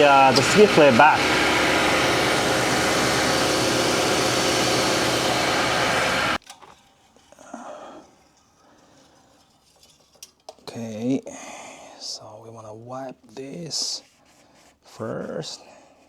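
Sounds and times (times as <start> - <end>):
truck engine idling: 0.0 - 6.4
faint handling sounds: 6.4 - 11.0.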